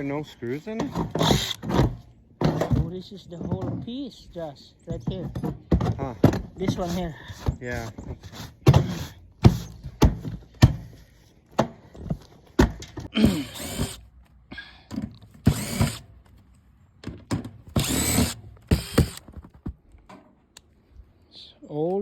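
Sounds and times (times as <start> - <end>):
sharp knocks and clunks: 0.7 - 4.1, 4.9 - 14.0, 17.0 - 20.4
power drill bursts: 13.2 - 14.0, 15.4 - 16.1, 17.7 - 19.2.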